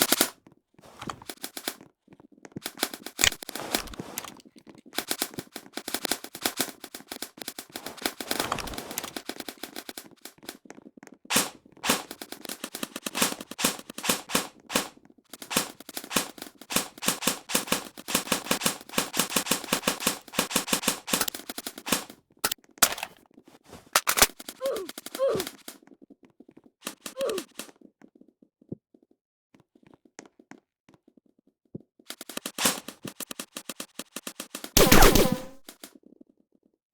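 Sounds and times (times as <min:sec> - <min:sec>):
airsoft guns firing: 0:11.3 - 0:23.2, 0:24.0 - 0:24.4, 0:34.8 - 0:35.6.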